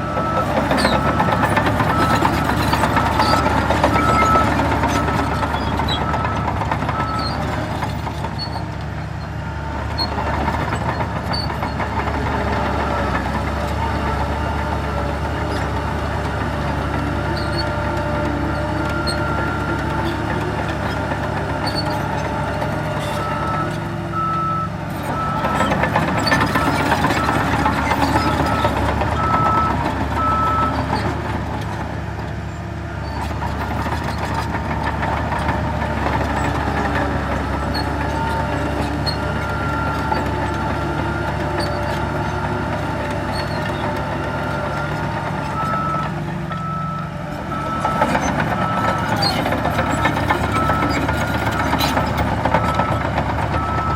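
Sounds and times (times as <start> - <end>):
reversing alarm beeps: 0.0 - 7.3, 23.2 - 30.8, 45.6 - 49.4, 52.6 - 53.9
heavy diesel machinery running: 0.0 - 53.9.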